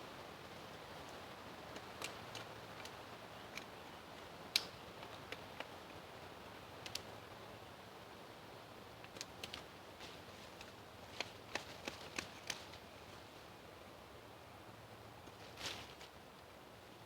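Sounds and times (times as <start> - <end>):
faint steady hiss: 0.0 - 17.0
sticks clicking and snapping: 4.6 - 5.7, 10.6 - 12.8.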